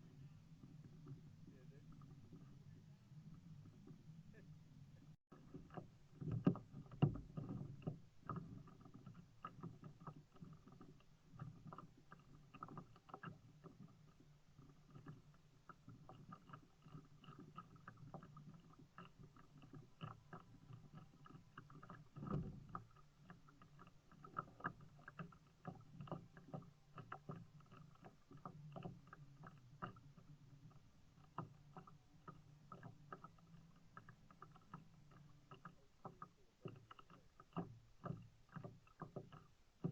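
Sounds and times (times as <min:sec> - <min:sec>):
kayak knocks and clicks: 0:05.3 - 0:39.9.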